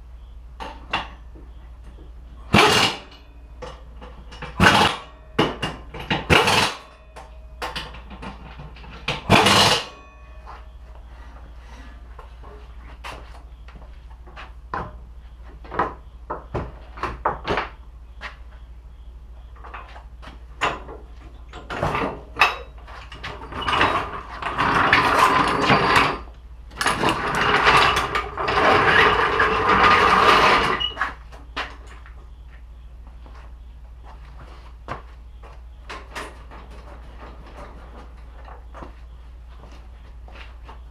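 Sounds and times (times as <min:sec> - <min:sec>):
loud mechanical noise: 0:02.4 - 0:10.0, 0:21.7 - 0:31.2.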